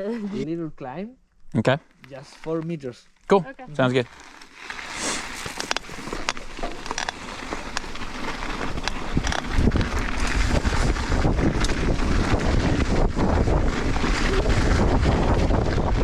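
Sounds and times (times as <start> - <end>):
bike rolling over wet dirt: 3.8 - 16.0
bike clicks and rattles: 4.1 - 16.0
wind buffeting microphone: 6.7 - 16.0.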